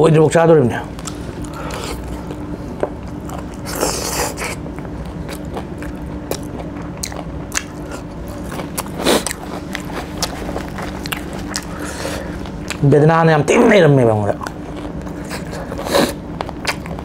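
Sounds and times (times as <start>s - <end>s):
chewing and biting: 1.0s - 12.8s, 14.3s - 17.0s
wet mouth clicks and crunches: 3.1s - 12.8s, 14.4s - 17.0s.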